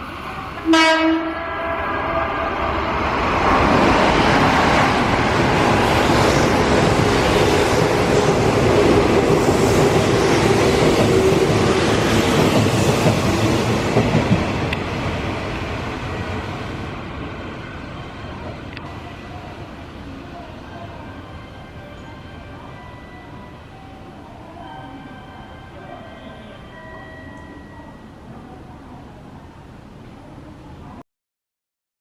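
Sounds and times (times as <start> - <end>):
train wheels rushing on rails: 1.8 - 21.6.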